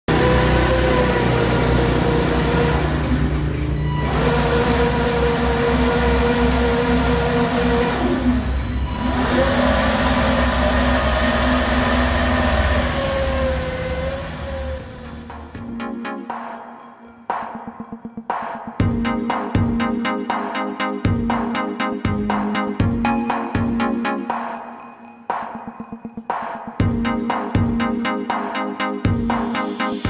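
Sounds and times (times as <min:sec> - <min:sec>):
motor whining: 0:00.0 - 0:15.7.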